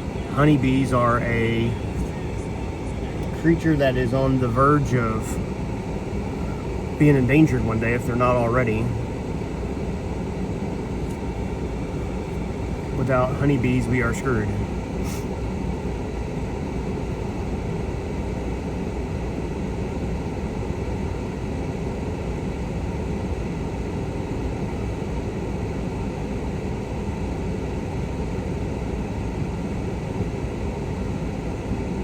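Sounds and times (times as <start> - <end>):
idling truck engine rumble: 0.0 - 18.1
blower fan hiss: 0.0 - 32.0.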